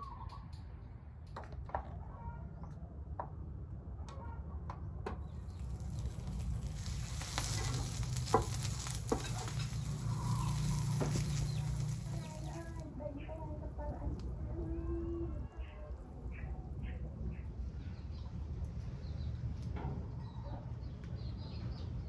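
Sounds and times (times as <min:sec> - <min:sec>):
food sizzling in a pan: 0:05.8 - 0:12.6.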